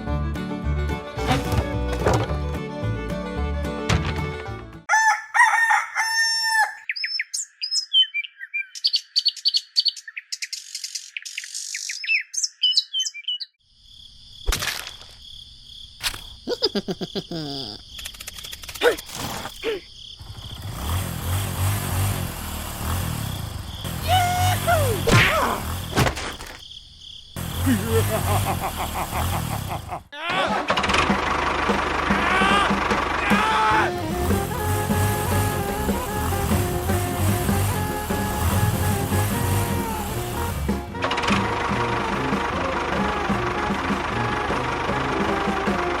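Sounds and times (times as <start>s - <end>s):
bird crowing call: 4.9s - 7.1s.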